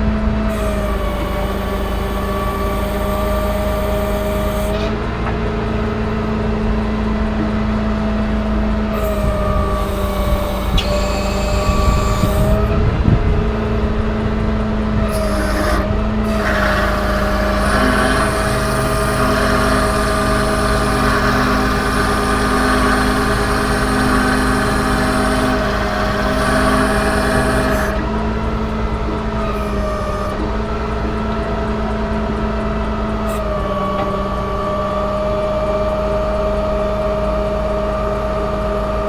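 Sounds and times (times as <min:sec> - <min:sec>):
diesel truck engine running: 0:00.0 - 0:39.0
hydraulic whine: 0:00.0 - 0:39.0.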